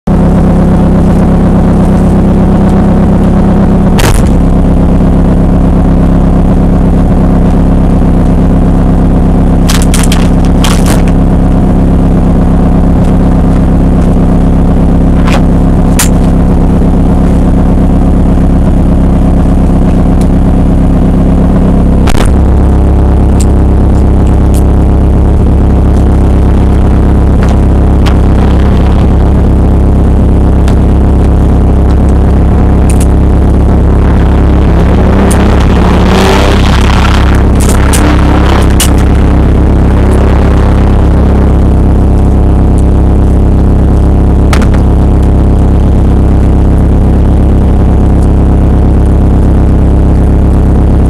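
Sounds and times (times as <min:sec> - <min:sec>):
car engine droning: 0:00.0 - 0:51.0
sharp clicks: 0:37.4 - 0:39.0.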